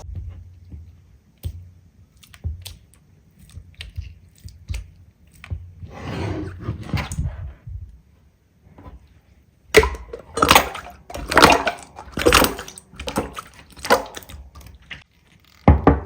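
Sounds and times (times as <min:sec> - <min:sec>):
hands squishing slime: 0:01.3 - 0:05.7, 0:09.8 - 0:15.1.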